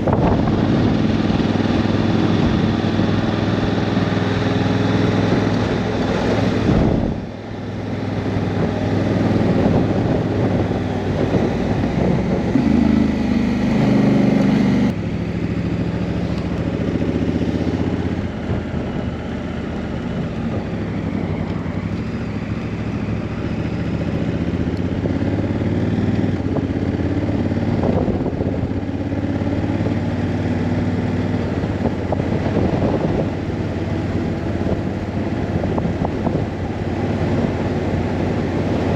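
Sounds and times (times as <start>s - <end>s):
wind rush: 0.0s - 15.0s, 23.2s - 38.9s
motorcycle engine running: 0.0s - 38.9s.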